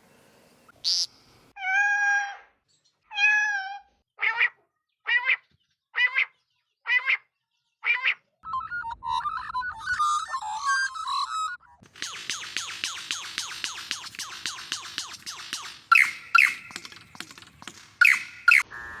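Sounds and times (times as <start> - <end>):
busy warbling: 8.4 - 18.7
bird calling: 12.0 - 18.7.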